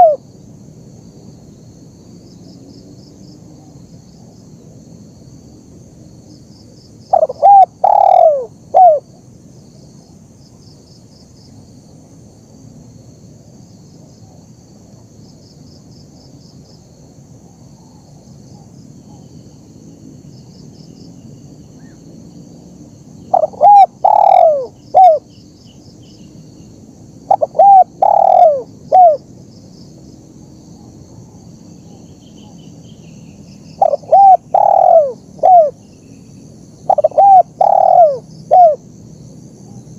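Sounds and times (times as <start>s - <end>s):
dove cooing: 0.0s - 0.2s, 7.1s - 9.1s, 23.3s - 25.3s, 27.3s - 29.2s, 33.8s - 35.8s, 36.9s - 38.8s.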